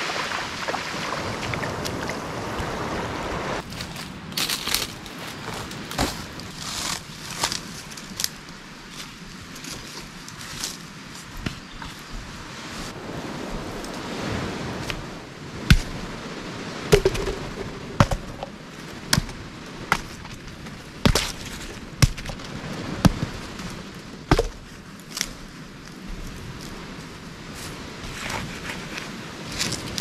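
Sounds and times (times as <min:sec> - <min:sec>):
coconuts dropping on ground: 0:16.9 - 0:20.4, 0:24.3 - 0:24.7.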